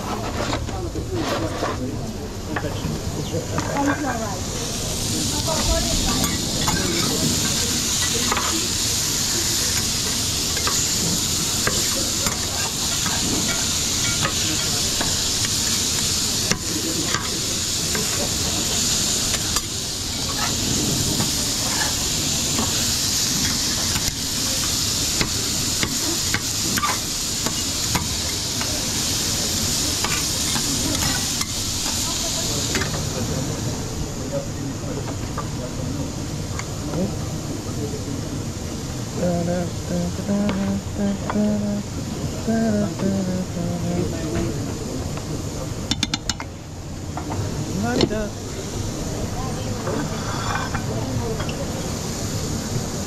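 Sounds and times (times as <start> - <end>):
food sizzling in a pan: 3.6 - 34.3, 47.1 - 53.0.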